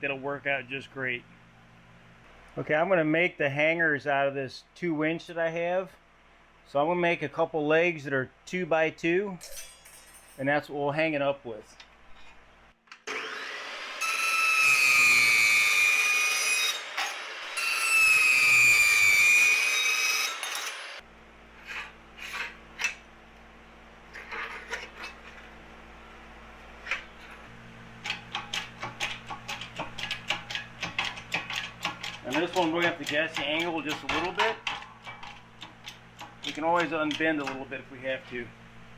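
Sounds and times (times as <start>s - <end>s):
low shop hum: 0.0s - 38.9s
power tool cutting steel: 13.1s - 21.0s.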